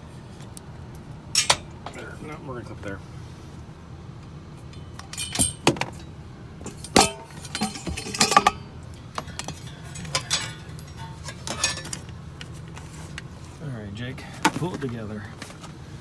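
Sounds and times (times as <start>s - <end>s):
low engine hum: 0.0s - 16.0s
metallic clicks and clinks: 1.4s - 2.0s, 4.6s - 12.5s.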